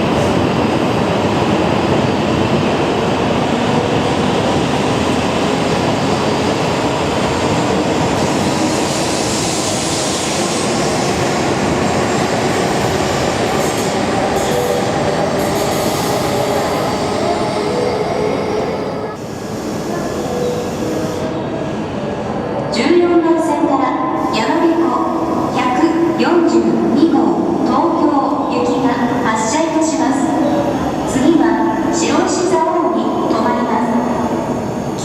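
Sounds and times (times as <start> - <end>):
train rushing past: 0.0 - 22.0.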